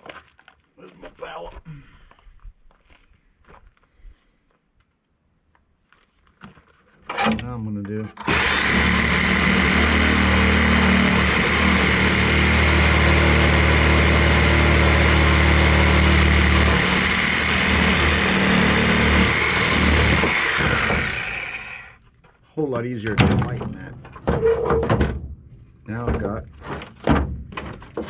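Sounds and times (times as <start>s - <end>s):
electric power tool whining: 7.1s - 7.5s, 8.2s - 22.0s.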